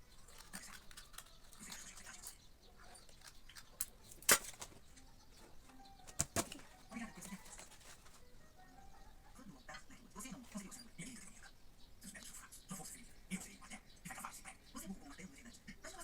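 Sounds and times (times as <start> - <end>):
light clicks and rustling: 0.1 - 8.2.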